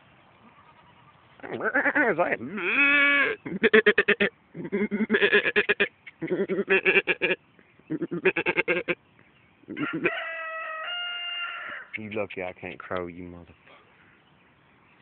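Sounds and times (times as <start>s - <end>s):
donkey braying: 0.4s - 9.0s, 9.7s - 12.0s.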